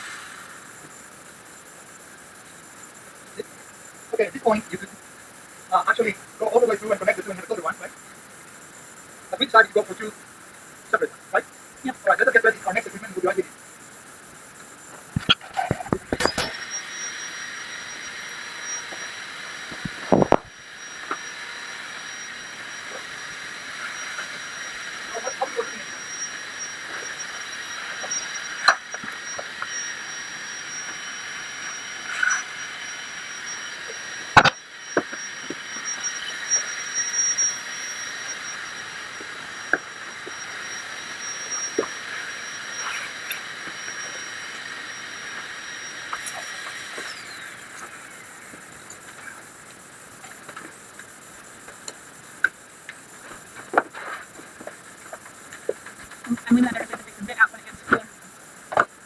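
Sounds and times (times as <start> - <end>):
power tool motor whining: 14.8 - 49.6.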